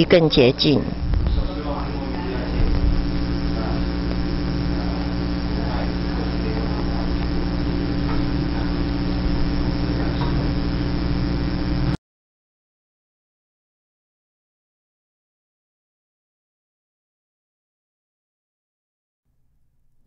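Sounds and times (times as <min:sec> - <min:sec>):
washing machine motor hum: 0:00.0 - 0:12.0.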